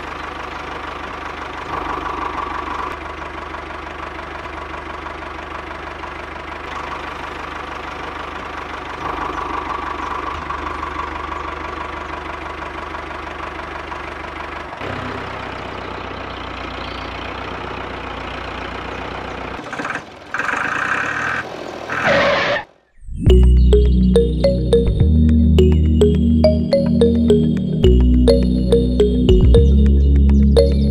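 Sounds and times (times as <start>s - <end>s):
small engine knocking: 0.0s - 21.4s.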